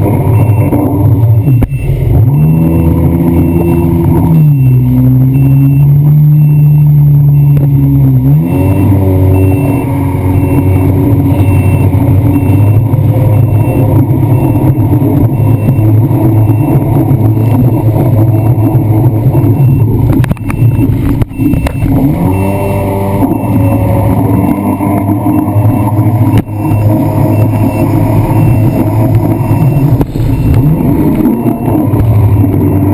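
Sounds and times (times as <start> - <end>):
jet ski engine running: 6.8 - 32.9
rushing noise: 10.0 - 32.9.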